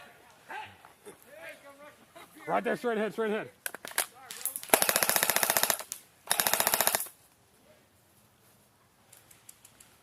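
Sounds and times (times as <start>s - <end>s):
airsoft rifle full-auto bursts: 4.7s - 7.2s.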